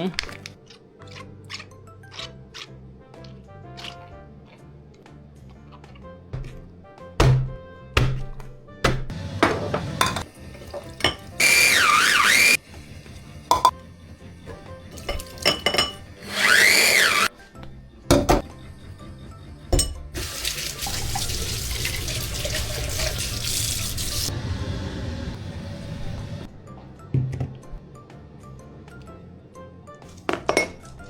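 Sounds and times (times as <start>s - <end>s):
water tap running into sink: 9.6s - 11.4s, 20.1s - 24.3s.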